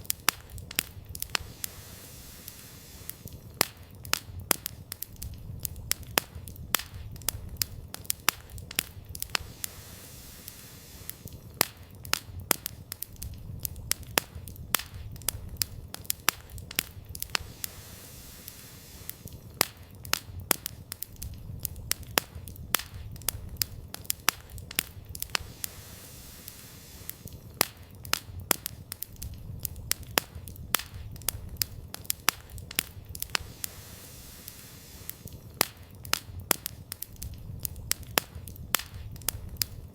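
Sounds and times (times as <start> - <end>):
campfire crackling and popping: 0.0 - 39.9
low rumble of flames: 0.0 - 39.9.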